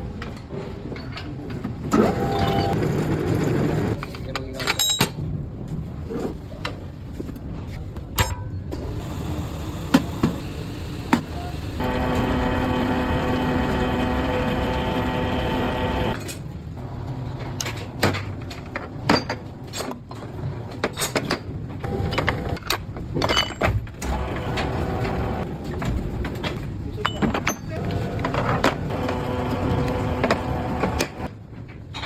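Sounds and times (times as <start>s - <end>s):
clicks and clatter of parts: 3.9s - 5.4s, 17.4s - 32.0s
machine hum: 8.8s - 16.2s, 24.0s - 25.6s, 27.8s - 31.3s.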